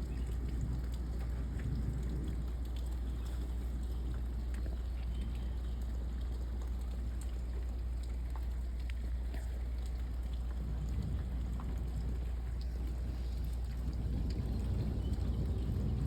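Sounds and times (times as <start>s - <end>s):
sharp ticks of raindrops: 0.0s - 16.0s
steady rain falling: 0.0s - 16.0s
deep low rumble: 10.4s - 16.0s.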